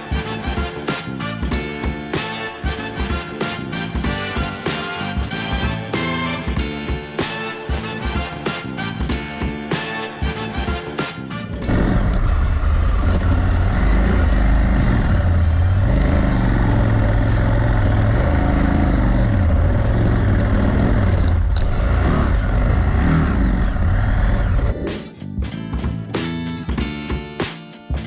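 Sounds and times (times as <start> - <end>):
steady rushing noise: 11.1 - 25.0
motorcycle engine revving: 11.5 - 25.0.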